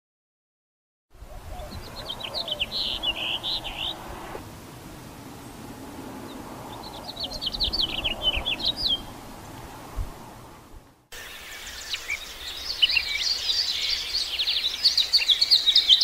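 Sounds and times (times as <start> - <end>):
faint outdoor background noise: 1.1 - 16.0
finch warbling song: 1.3 - 4.0.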